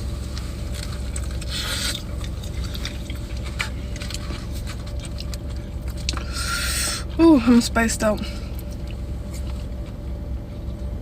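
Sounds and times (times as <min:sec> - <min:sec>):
chewing with wet clicks: 0:00.2 - 0:06.6, 0:08.5 - 0:10.0.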